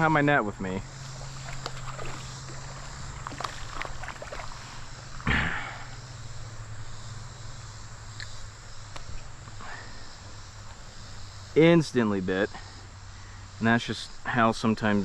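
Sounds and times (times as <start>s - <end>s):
fish splashing in water: 1.1s - 5.2s.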